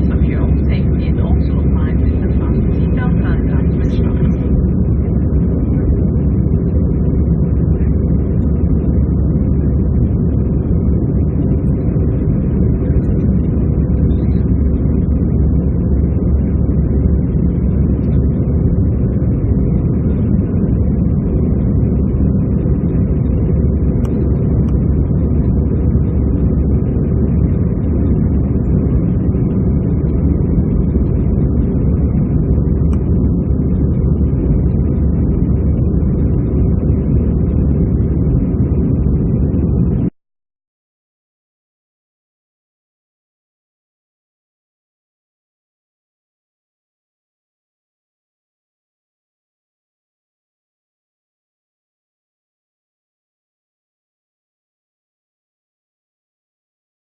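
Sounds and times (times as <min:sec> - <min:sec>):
airplane cabin engine roar: 0:00.0 - 0:40.2.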